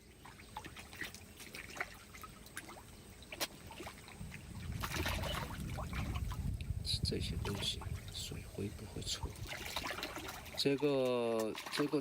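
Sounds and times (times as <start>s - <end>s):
low rumble of disturbed water: 0.0s - 12.0s
water splashing and trickling: 0.0s - 12.0s
water dripping: 7.4s - 12.0s.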